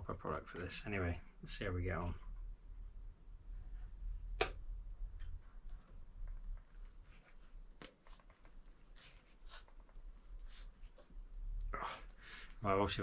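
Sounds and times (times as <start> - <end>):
rubbing and handling noises: 5.2 - 12.6.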